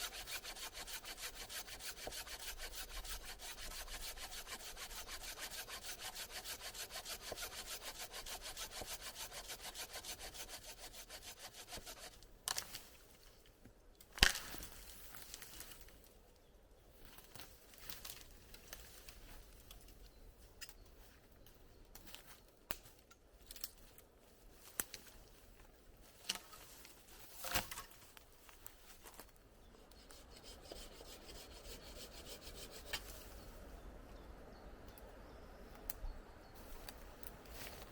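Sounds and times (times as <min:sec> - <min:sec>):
hand saw cutting wood: 0:00.0 - 0:12.2, 0:29.9 - 0:33.3.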